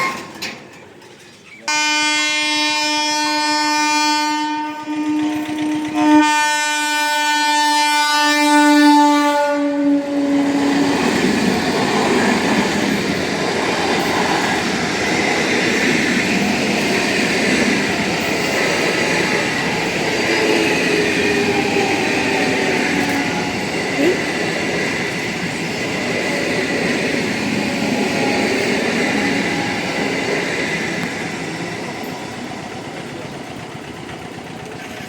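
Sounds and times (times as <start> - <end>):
train running over rails: 0.0 - 35.0
train horn blasts: 1.7 - 10.9.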